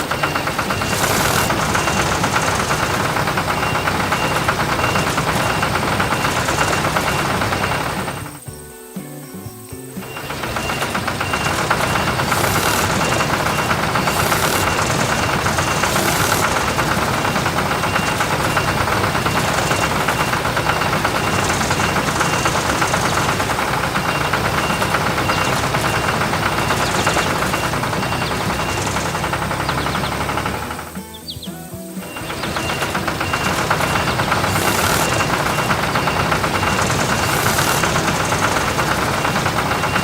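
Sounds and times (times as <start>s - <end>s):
vehicle engine running: 0.0s - 8.6s, 9.9s - 40.0s.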